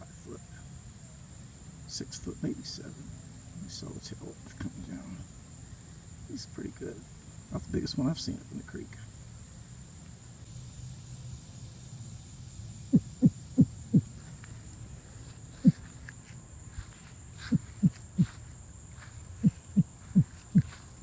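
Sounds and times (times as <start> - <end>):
low animal calls dropping in pitch: 12.9 - 14.1, 15.5 - 15.9, 17.4 - 18.4, 19.4 - 20.8.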